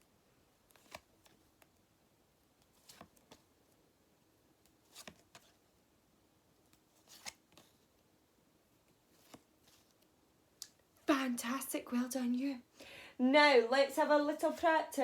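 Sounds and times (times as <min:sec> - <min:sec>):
faint rustles and clicks: 0:04.6 - 0:05.7, 0:08.8 - 0:10.8.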